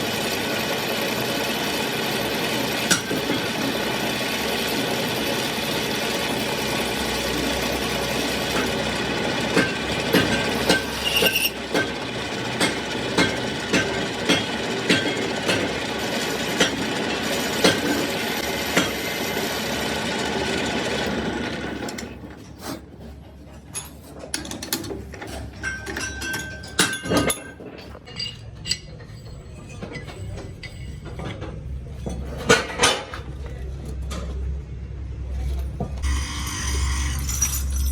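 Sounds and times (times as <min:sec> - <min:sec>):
workshop machine running: 0:00.0 - 0:37.9
machine clicks and knocks: 0:02.3 - 0:05.2, 0:11.6 - 0:19.0
metal parts clinking: 0:23.8 - 0:33.0, 0:35.5 - 0:37.9.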